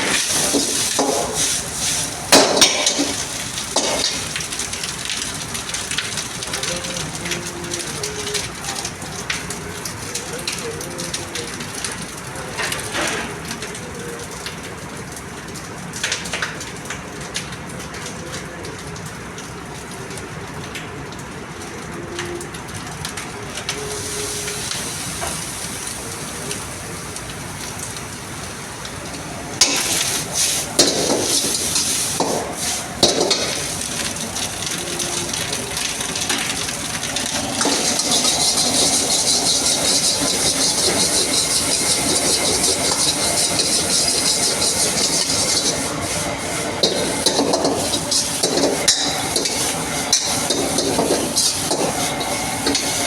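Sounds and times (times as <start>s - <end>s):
food sizzling in a wok: 0.0s - 10.3s, 23.7s - 53.0s
metal spatula scraping a pan: 37.6s - 53.0s.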